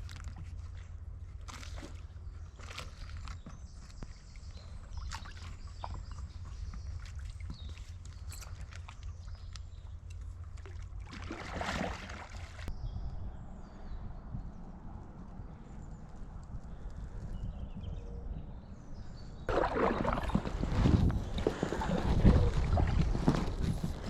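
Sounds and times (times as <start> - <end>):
canoe paddling through water: 10.4 - 12.7, 19.5 - 24.0
water splash: 10.7 - 12.7, 19.5 - 23.2.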